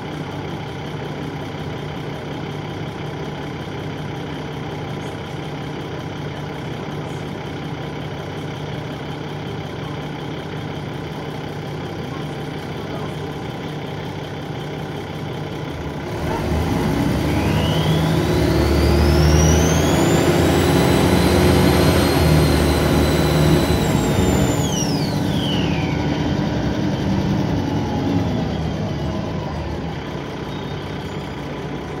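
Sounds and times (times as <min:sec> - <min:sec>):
bus diesel engine idling: 0:00.0 - 0:32.0
turbo whine: 0:16.1 - 0:32.0.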